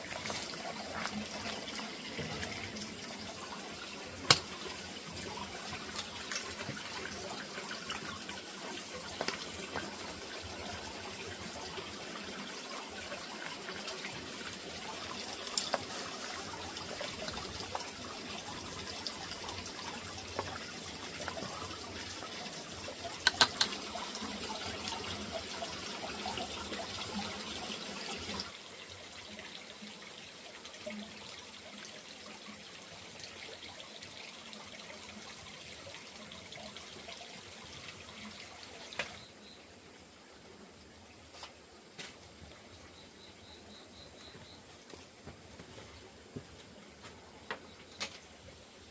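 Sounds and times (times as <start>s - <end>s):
water running: 0.0s - 40.1s
sharp clicks and knocks: 23.2s - 23.8s.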